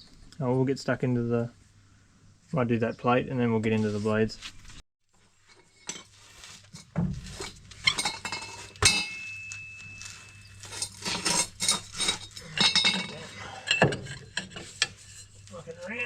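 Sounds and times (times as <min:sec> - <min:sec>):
hand tools clinking on steel: 0:07.4 - 0:15.4.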